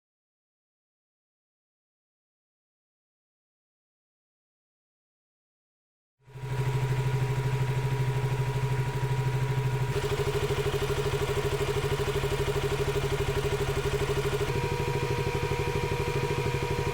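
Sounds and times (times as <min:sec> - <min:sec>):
motorcycle engine idling: 0:06.3 - 0:16.9.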